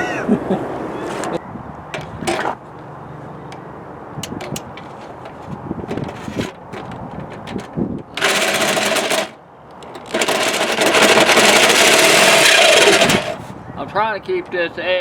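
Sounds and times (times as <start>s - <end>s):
power tool cutting sheet metal: 8.2s - 9.4s, 10.0s - 13.4s.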